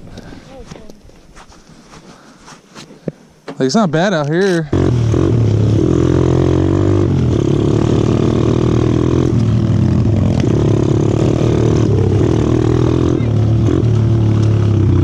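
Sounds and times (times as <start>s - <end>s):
pit bike engine running: 4.7s - 15.0s.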